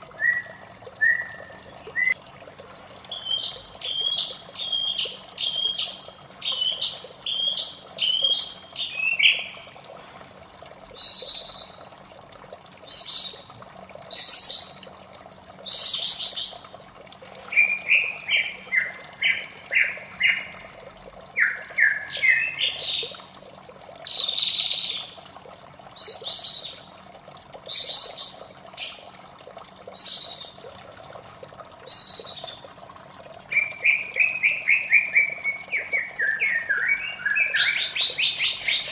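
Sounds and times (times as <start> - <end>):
running water: 0.0 - 38.9
bird singing whistled phrases: 0.2 - 2.2, 3.1 - 9.6, 11.0 - 11.8, 17.5 - 20.5, 21.4 - 23.1, 24.1 - 25.1, 30.0 - 30.6, 31.8 - 32.6, 33.5 - 38.9.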